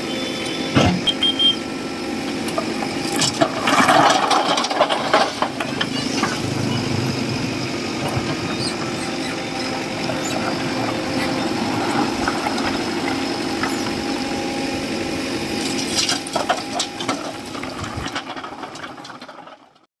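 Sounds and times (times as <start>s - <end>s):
diesel engine running: 0.0s - 19.8s.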